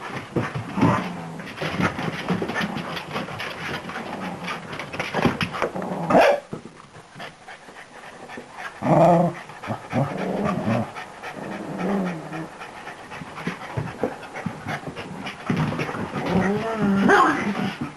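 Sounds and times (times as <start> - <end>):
dog panting: 7.0 - 16.7.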